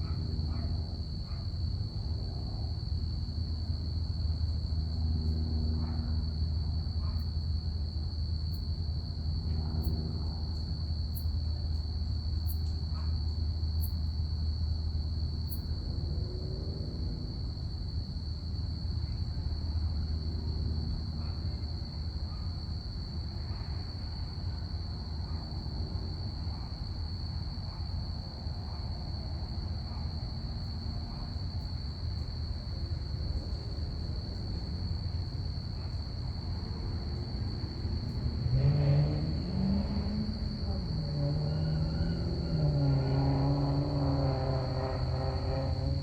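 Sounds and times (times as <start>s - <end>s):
crickets chirping: 0.0s - 46.0s
distant plane rumble: 0.0s - 46.0s.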